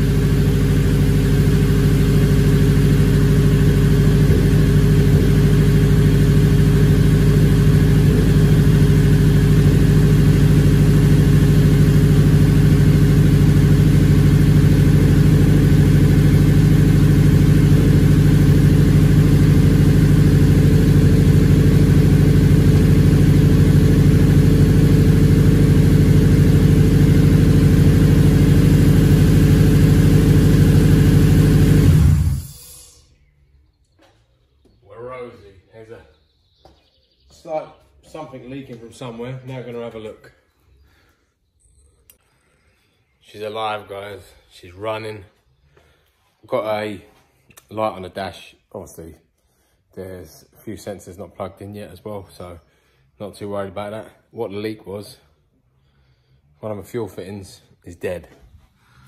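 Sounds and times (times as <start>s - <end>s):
car engine idling: 0.0s - 33.3s.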